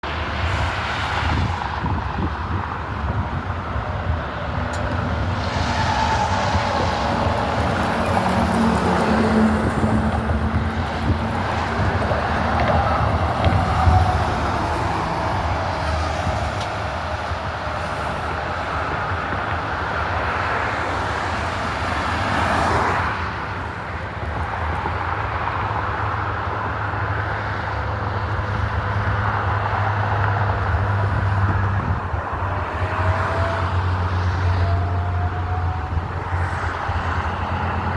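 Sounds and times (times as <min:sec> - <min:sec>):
traffic engine drone: 0:00.0 - 0:37.9
vehicle passing close: 0:00.4 - 0:18.4.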